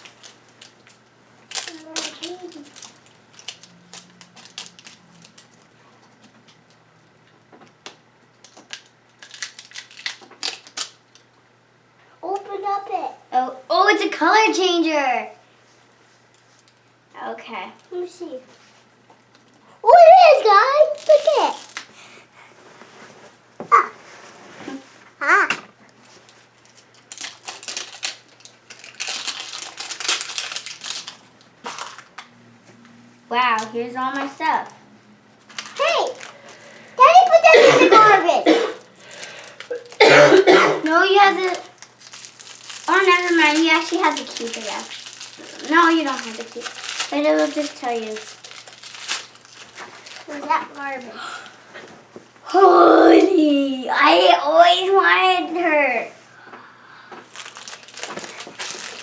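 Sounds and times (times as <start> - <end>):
plastic packaging clicks and rustles: 0.0 - 6.8, 7.9 - 11.4, 20.8 - 21.9, 25.9 - 32.3, 35.4 - 37.4, 38.9 - 40.0, 40.9 - 51.6, 57.2 - 59.0.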